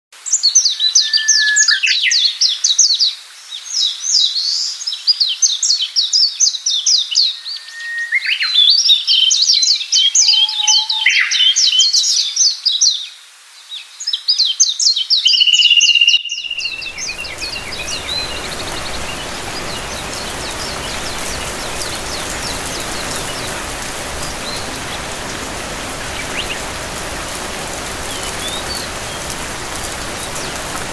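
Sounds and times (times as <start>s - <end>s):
bird whistle-like note: 1.0s - 1.9s, 10.2s - 11.6s
birds chirping: 7.4s - 11.8s, 15.6s - 30.9s
steady rain: 16.4s - 30.9s.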